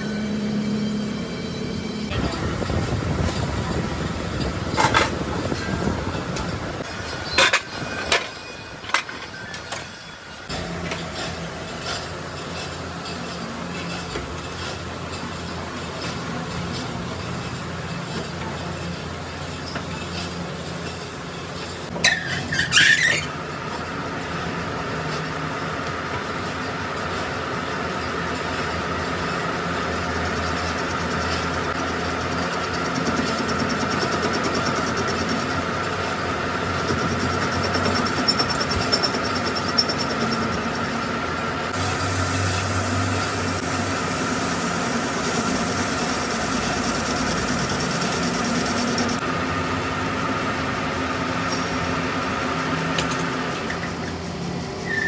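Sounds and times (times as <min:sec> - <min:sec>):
workshop machine whining: 0:00.0 - 0:55.0
falling screech: 0:22.0 - 0:23.3
hiss: 0:41.8 - 0:49.2.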